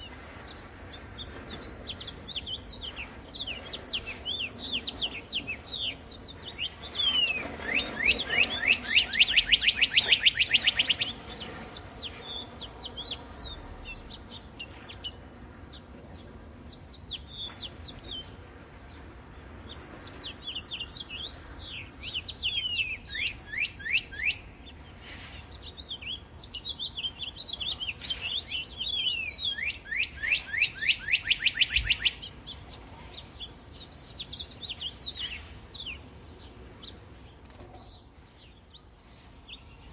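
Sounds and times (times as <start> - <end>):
songbirds chirping: 0.0 - 39.9
bird trills: 1.2 - 15.7, 20.3 - 37.0.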